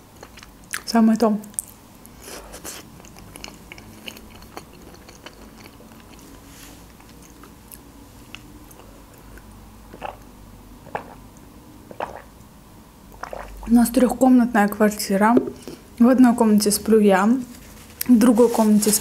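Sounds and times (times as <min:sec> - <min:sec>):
chewing mouth sounds: 0:00.2 - 0:00.9, 0:01.5 - 0:12.3, 0:13.2 - 0:13.7
swallowing sounds: 0:09.4 - 0:11.2, 0:11.9 - 0:12.3, 0:13.1 - 0:13.7.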